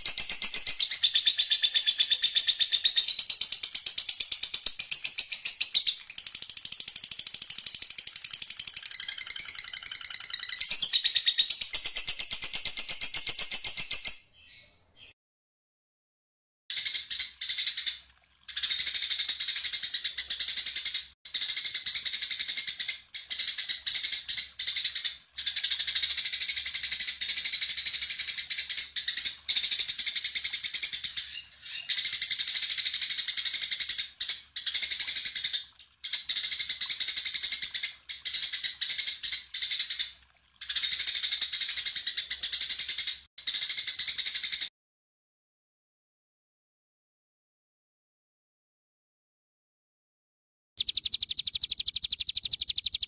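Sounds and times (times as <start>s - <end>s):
songbird chattering song: 0.0s - 15.2s, 19.0s - 40.0s, 50.8s - 53.0s.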